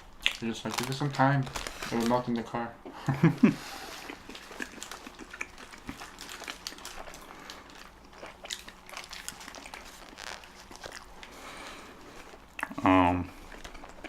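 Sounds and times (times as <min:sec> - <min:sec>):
chewing and biting: 0:03.8 - 0:14.0
mouth clicks and smacks: 0:04.0 - 0:06.7, 0:12.5 - 0:12.8.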